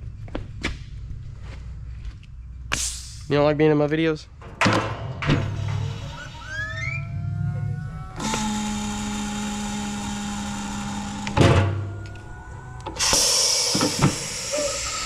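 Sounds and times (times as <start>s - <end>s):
small power tool motor: 8.2s - 15.0s
hissing rush of noise: 12.2s - 15.0s.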